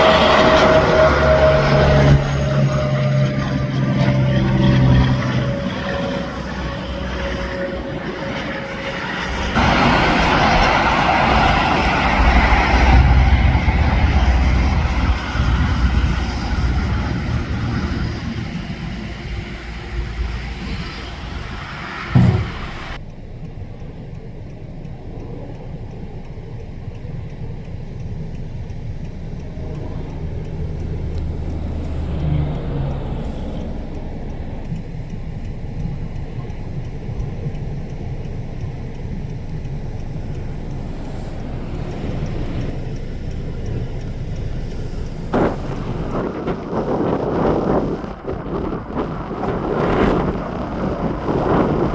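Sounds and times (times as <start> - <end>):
traffic rumble: 0.0 - 51.9
vehicle engine and tyre rumble: 0.0 - 51.9
sharp thump: 22.1 - 23.0.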